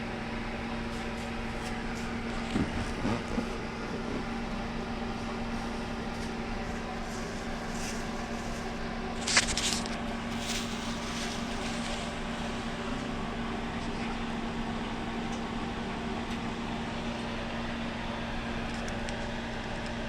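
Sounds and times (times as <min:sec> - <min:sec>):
mechanical hum: 0:00.0 - 0:20.0
sharp crackling clatter: 0:07.2 - 0:12.8.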